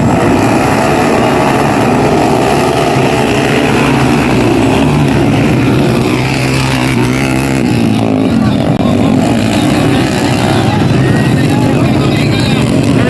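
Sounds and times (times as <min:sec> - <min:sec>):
motocross bike engines: 0:00.0 - 0:13.0.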